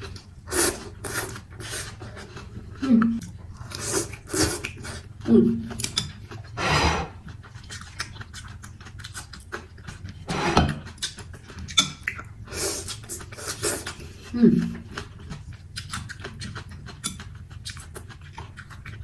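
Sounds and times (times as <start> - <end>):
chewing and mouth noises: 0.0 - 19.0
slurping noodles: 0.5 - 2.4, 3.6 - 5.0, 6.6 - 7.2, 10.3 - 10.8, 12.5 - 14.0.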